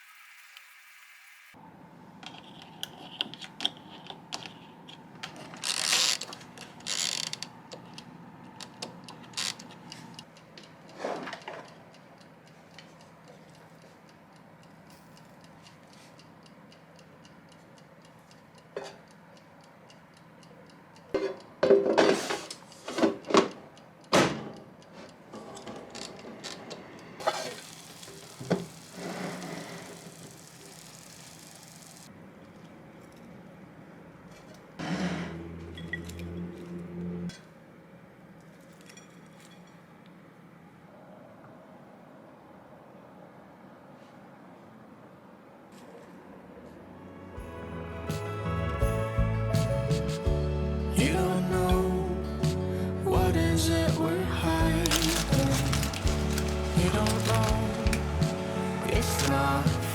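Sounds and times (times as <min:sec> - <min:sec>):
faint steady hum: 0:27.2 - 0:32.3
objects being handled: 0:54.6 - 0:59.9.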